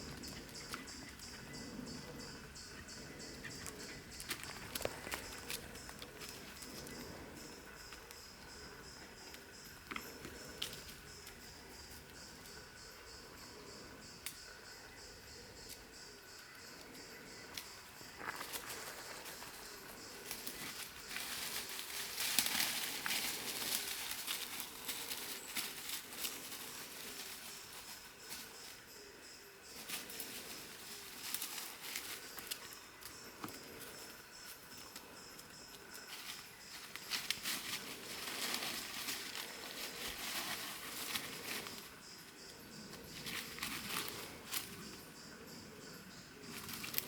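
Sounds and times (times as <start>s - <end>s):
footsteps on leafy forest path: 3.6s - 7.0s, 18.1s - 27.4s.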